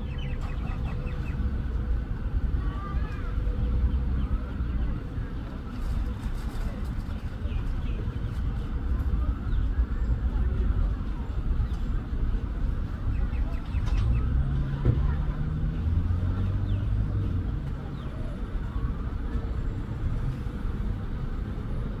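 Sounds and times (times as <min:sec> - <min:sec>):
road traffic rumble: 0:00.0 - 0:22.0
vehicle engine hum: 0:10.3 - 0:22.0.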